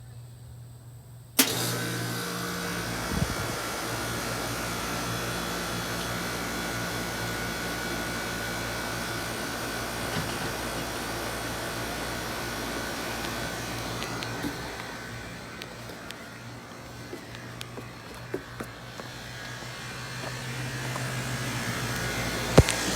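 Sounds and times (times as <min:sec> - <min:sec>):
air conditioner running hum: 0:00.0 - 0:22.9
faint high whine: 0:11.8 - 0:22.9.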